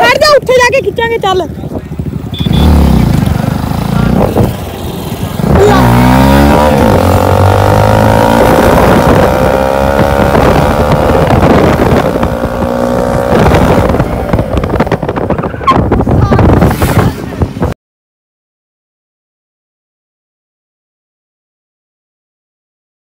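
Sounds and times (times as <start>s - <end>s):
motorcycle engine accelerating: 1.5s - 17.8s.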